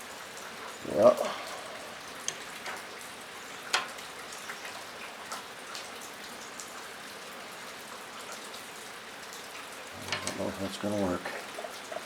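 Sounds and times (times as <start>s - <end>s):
rain on a metal roof: 0.0s - 12.0s.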